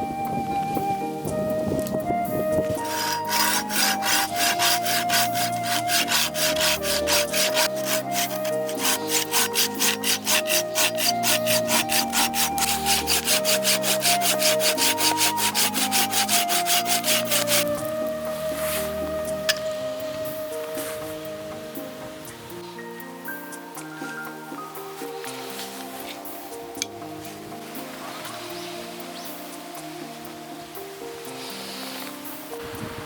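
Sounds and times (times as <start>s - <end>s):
saw cutting through wood: 2.8s - 18.1s.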